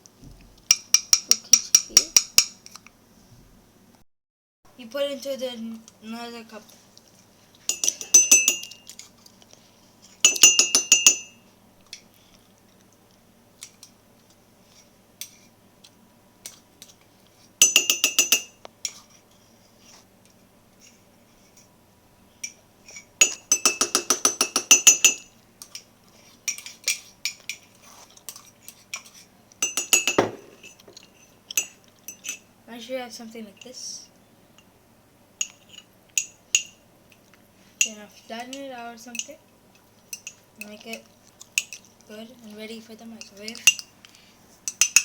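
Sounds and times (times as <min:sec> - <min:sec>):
spoon clinking against cup: 0:00.7 - 0:02.6, 0:07.7 - 0:09.1, 0:10.2 - 0:11.4, 0:17.6 - 0:18.6, 0:23.0 - 0:25.8, 0:29.0 - 0:32.4, 0:40.1 - 0:40.4, 0:44.7 - 0:45.0.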